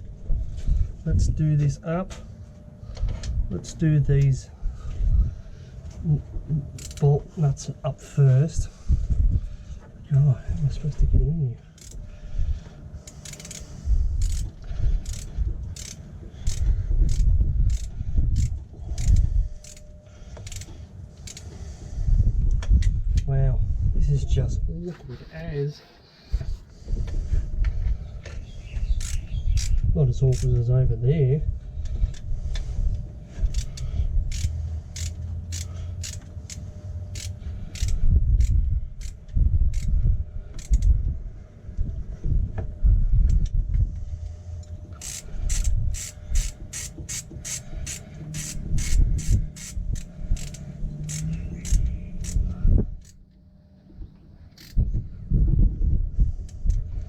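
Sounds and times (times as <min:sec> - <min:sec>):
low rumble: 0:00.0 - 0:25.4, 0:26.4 - 0:46.8, 0:47.5 - 0:57.0
socket ratchet clicking: 0:06.7 - 0:07.0, 0:11.8 - 0:12.0, 0:13.0 - 0:21.5, 0:28.8 - 0:30.5, 0:33.5 - 0:39.9, 0:40.6 - 0:40.9, 0:44.6 - 0:53.2, 0:54.6 - 0:54.8.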